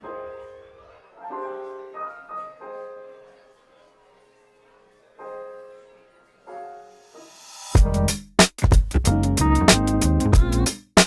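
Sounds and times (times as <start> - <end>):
soft piano chords: 0.0 - 8.1.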